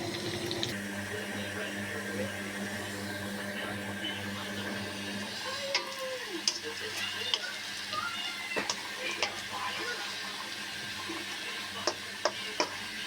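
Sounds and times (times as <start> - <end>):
running water: 0.0 - 0.8, 5.1 - 13.0.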